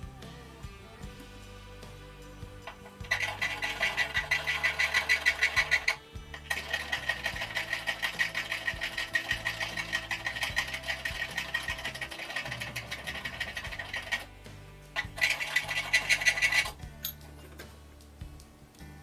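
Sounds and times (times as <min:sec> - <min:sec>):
fast mechanical clicking: 0:02.8 - 0:14.3, 0:15.0 - 0:16.8.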